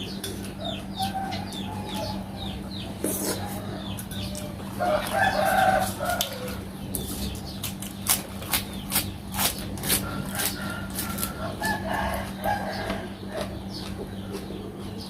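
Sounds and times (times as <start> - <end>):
chicken calling: 0.0 - 6.9
person chewing food: 3.0 - 15.0.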